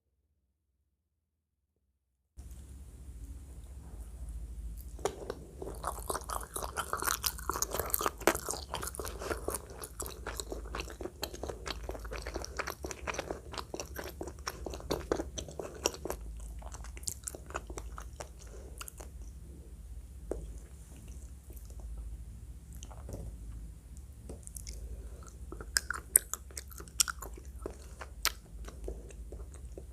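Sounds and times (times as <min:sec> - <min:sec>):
loud chewing and biting: 0:04.9 - 0:19.2, 0:24.4 - 0:29.9.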